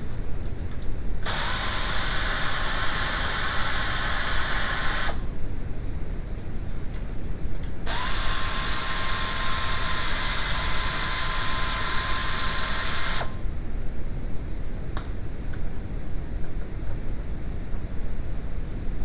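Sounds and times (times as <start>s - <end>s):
power tool whining: 1.2s - 5.2s, 7.9s - 13.4s.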